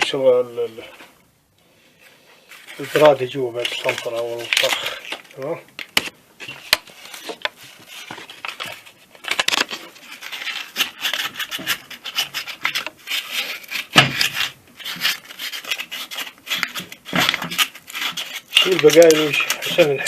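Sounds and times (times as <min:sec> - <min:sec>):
sandpaper scrubbing metal: 0:10.4 - 0:20.0.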